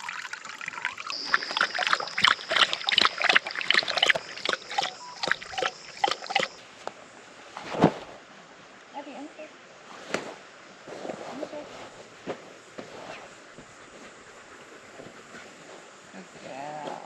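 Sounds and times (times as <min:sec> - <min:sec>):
dog lapping water: 0:00.0 - 0:06.6
steady high-pitched tone: 0:01.1 - 0:06.6.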